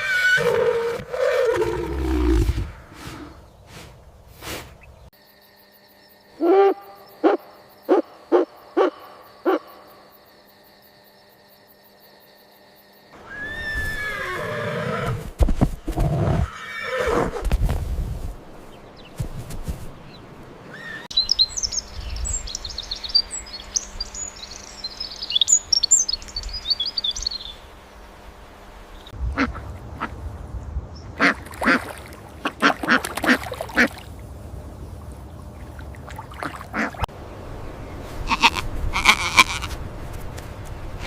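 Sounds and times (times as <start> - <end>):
ducks quacking: 29.3 - 30.2, 31.2 - 34.0, 36.3 - 37.1.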